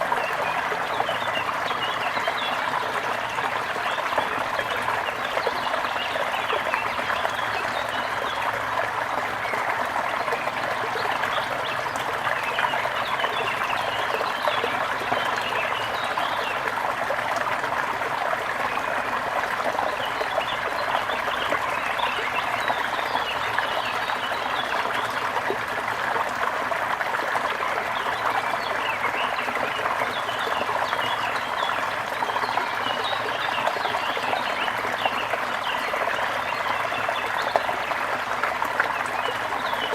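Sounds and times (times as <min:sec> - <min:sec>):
water trickling and babbling: 0:00.0 - 0:39.9.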